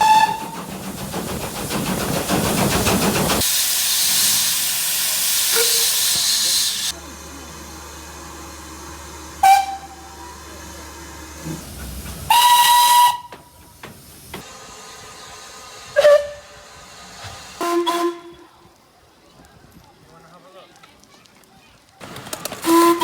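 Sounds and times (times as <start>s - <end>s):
steam locomotive whistle blasts: 0.0s - 0.6s, 5.4s - 6.9s, 9.3s - 10.2s, 12.3s - 13.5s, 16.0s - 16.6s, 17.6s - 18.5s, 22.6s - 23.0s.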